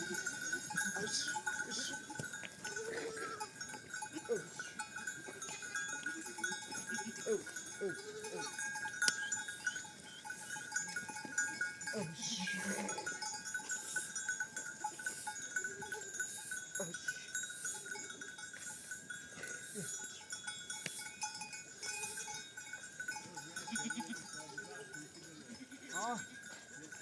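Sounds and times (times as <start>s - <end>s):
sheep and goats bleating: 0.0s - 18.1s, 23.6s - 27.0s
livestock bells jingling: 0.0s - 27.0s.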